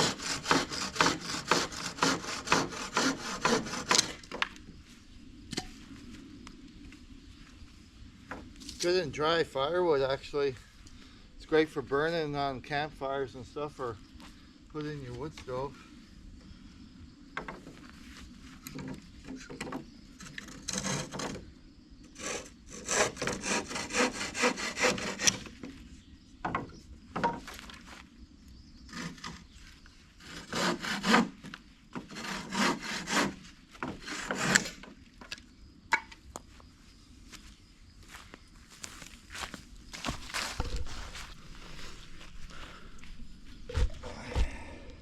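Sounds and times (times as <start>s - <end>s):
hand saw cutting wood: 0.0s - 4.4s, 20.2s - 21.4s, 22.2s - 25.6s, 28.9s - 29.4s, 30.2s - 34.8s.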